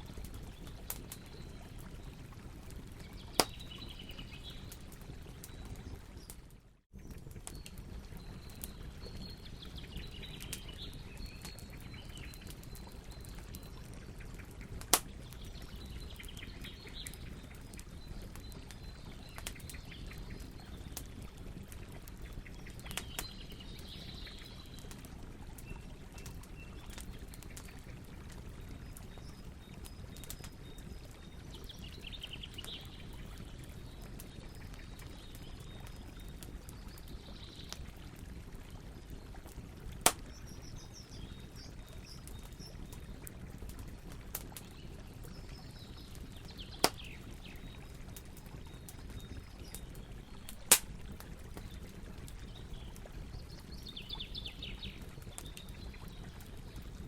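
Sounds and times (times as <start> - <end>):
campfire crackling: 0.0 - 57.0
fire pops: 3.1 - 4.0, 13.6 - 16.9, 40.0 - 40.9, 46.7 - 48.3, 49.1 - 54.2.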